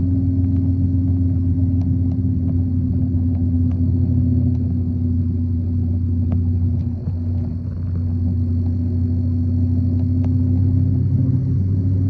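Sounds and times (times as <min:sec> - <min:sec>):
motorcycle engine droning: 0:00.0 - 0:12.0
faint ticks: 0:00.4 - 0:00.7, 0:01.7 - 0:04.7, 0:06.1 - 0:08.9, 0:09.8 - 0:10.8.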